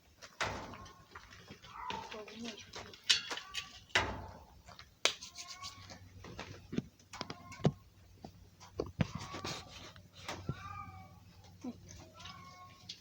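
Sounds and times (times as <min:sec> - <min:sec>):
tools clanking on bicycle: 0:00.3 - 0:04.4.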